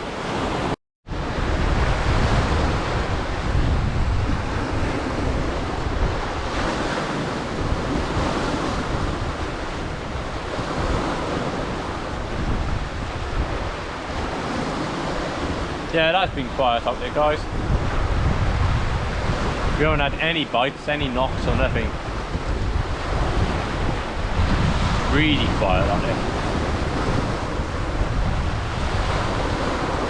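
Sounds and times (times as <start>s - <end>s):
sea waves breaking on shore: 0.0s - 30.0s
wind buffeting microphone: 0.0s - 30.0s.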